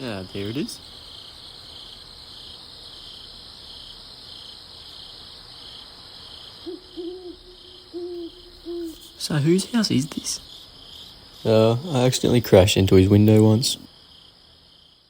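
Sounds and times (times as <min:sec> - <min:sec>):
crickets chirping: 0:00.0 - 0:15.0
owl hooting: 0:06.5 - 0:10.6.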